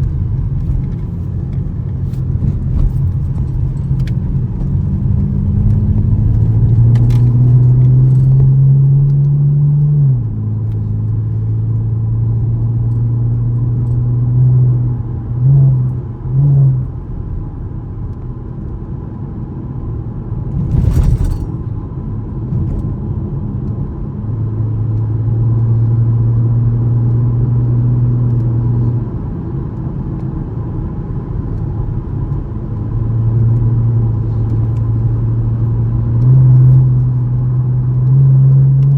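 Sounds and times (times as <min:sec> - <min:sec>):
car engine accelerating: 0:00.0 - 0:17.1, 0:31.2 - 0:38.9.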